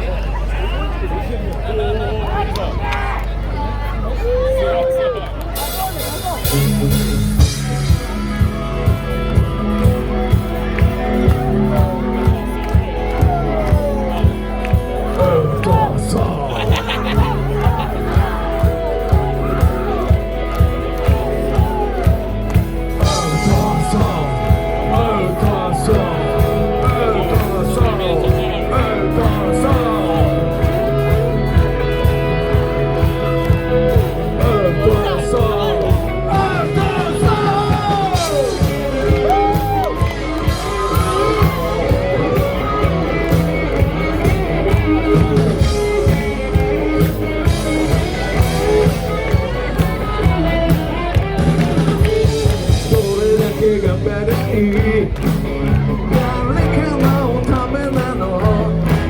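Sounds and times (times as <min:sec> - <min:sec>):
bass guitar: 0:00.0 - 0:59.0
electric guitar: 0:04.2 - 0:59.0
steady drum beat: 0:05.6 - 0:59.0
person singing: 0:11.0 - 0:22.2, 0:23.0 - 0:59.0.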